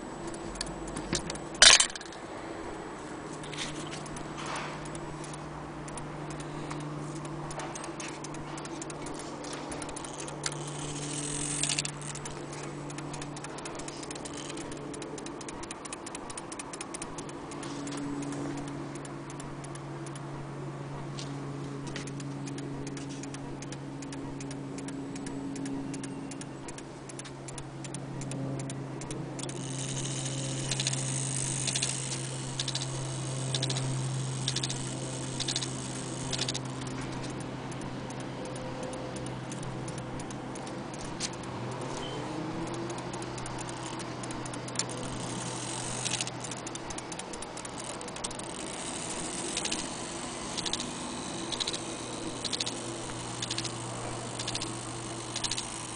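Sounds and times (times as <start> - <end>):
low steady hum: 0.0 - 55.9
wall clock ticking: 4.0 - 20.4, 21.9 - 55.9.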